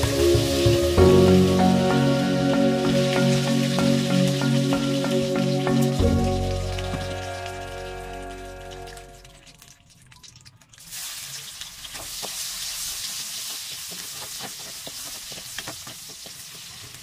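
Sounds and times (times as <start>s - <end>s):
garlic and onion sizzling in oil: 10.8s - 17.0s.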